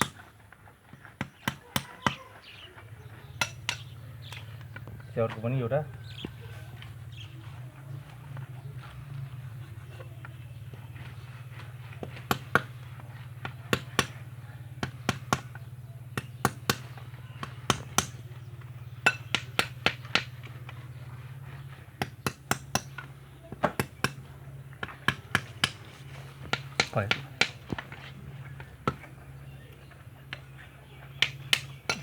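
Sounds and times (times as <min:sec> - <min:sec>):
steady low hum: 0:02.8 - 0:32.0
hammer striking wall: 0:16.2 - 0:18.2, 0:22.0 - 0:23.0.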